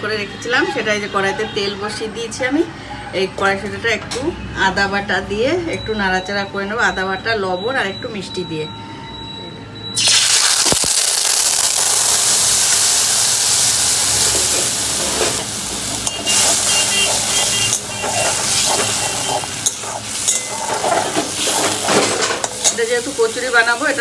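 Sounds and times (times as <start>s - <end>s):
paste sizzling in hot oil: 10.0s - 24.0s
metal spatula scraping pan: 14.3s - 22.9s.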